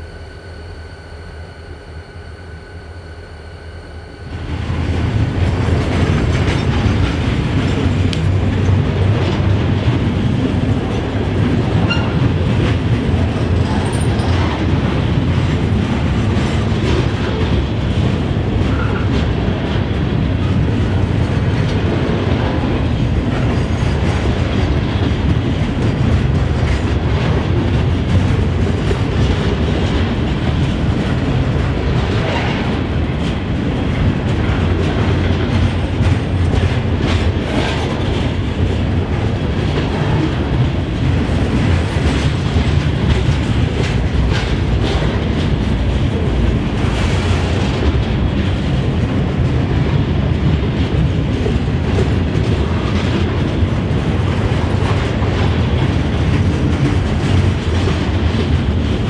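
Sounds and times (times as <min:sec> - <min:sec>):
drone propeller whine: 0:00.0 - 0:08.8
freight train rumbling past: 0:00.0 - 0:59.0
wheels clacking over rail joints: 0:04.4 - 0:59.0.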